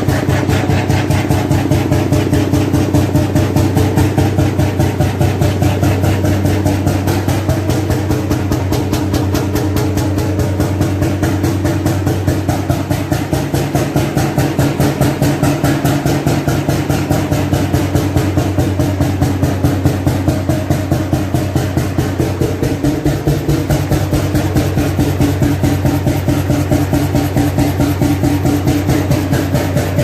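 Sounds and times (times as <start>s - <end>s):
single-cylinder oil engine running: 0.0s - 30.0s.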